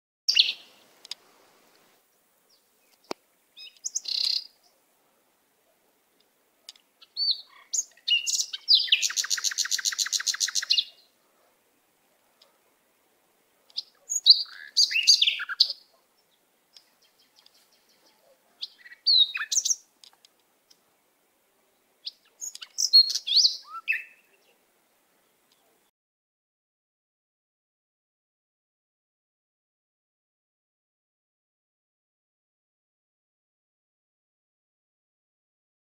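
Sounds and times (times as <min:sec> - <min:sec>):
bird chirping and whistling: 0:07.2 - 0:10.9, 0:14.1 - 0:15.7, 0:18.6 - 0:19.8, 0:22.4 - 0:24.2.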